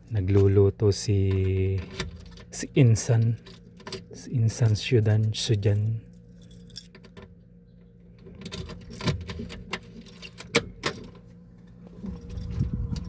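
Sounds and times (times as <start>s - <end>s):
small metal items jingling: 0.0s - 0.7s, 3.2s - 6.9s, 10.0s - 10.5s, 12.1s - 13.0s
faint machine hum: 0.0s - 13.0s.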